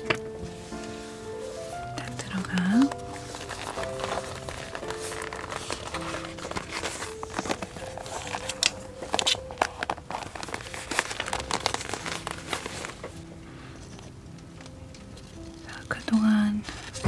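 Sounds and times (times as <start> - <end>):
paper and packaging crinkling: 0.0 - 17.0
sharp crackles: 2.3 - 13.2.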